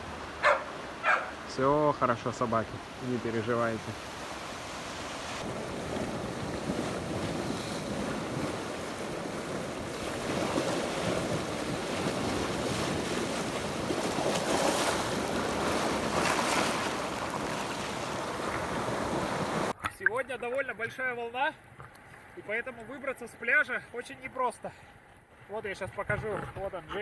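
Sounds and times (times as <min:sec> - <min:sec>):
sea surf breaking on shore: 0:00.0 - 0:19.8
wind buffeting microphone: 0:02.5 - 0:19.7.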